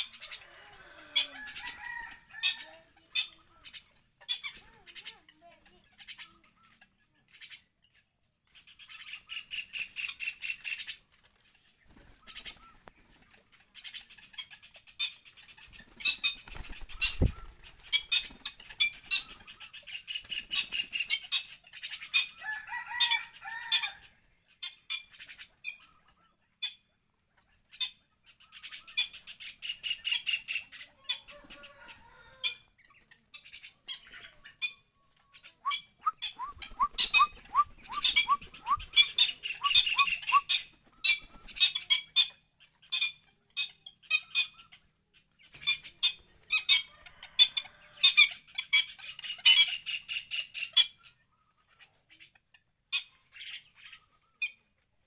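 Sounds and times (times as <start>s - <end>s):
birds chattering trills: 0.0s - 54.7s
lower wavering bird calls: 34.6s - 41.8s
short rising chirps: 35.6s - 38.8s.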